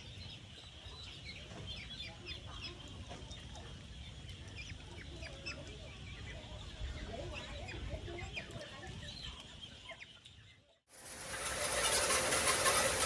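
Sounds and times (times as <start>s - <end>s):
chickens clucking: 0.1s - 10.5s, 11.1s - 13.0s
high falling chirps: 11.0s - 13.0s.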